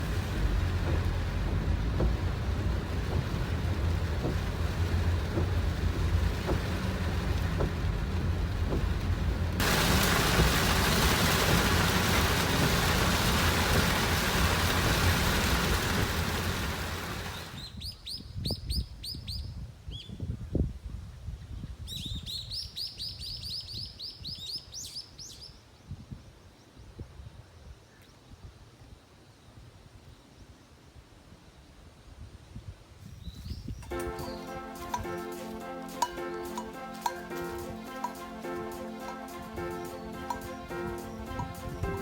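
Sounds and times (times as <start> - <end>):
water drips: 0.0 - 17.6, 33.8 - 42.0
rain falling: 0.0 - 17.7, 33.8 - 42.0.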